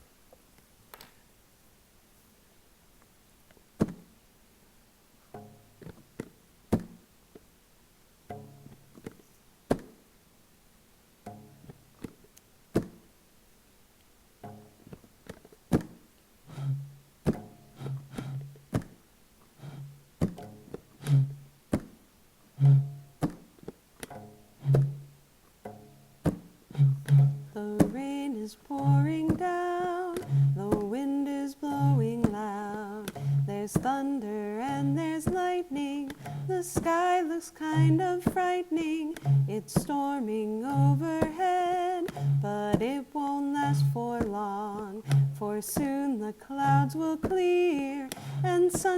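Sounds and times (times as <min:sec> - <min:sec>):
short plucked tones: 0:05.2 - 0:07.0, 0:08.2 - 0:09.9, 0:11.2 - 0:12.2, 0:14.4 - 0:48.9
sharp clicks and knocks: 0:05.3 - 0:07.5, 0:14.4 - 0:22.0, 0:22.6 - 0:48.9
person humming a melody: 0:16.5 - 0:16.9, 0:17.7 - 0:18.6, 0:19.6 - 0:20.0, 0:21.0 - 0:21.4, 0:22.6 - 0:23.1, 0:24.6 - 0:25.0, 0:26.7 - 0:48.9
low drum-like thumps: 0:16.5 - 0:18.8, 0:19.6 - 0:21.6, 0:22.6 - 0:23.3, 0:24.4 - 0:28.0, 0:34.6 - 0:40.0, 0:40.7 - 0:43.0, 0:43.6 - 0:46.0.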